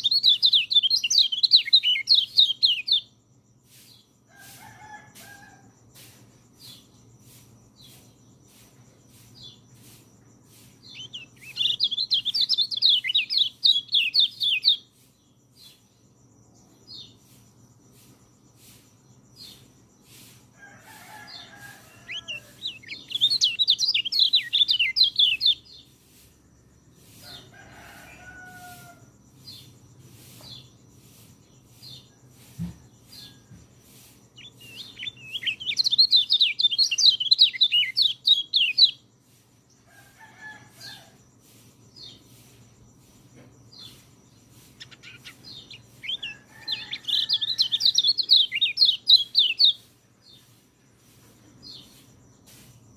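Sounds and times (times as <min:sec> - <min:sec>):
lower bird calls: 0:00.0 - 0:03.1, 0:06.0 - 0:15.1, 0:43.1 - 0:50.6.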